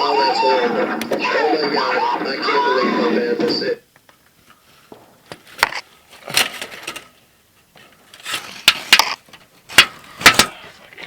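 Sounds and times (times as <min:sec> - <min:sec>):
fireworks cracking and popping: 0:04.8 - 0:06.4.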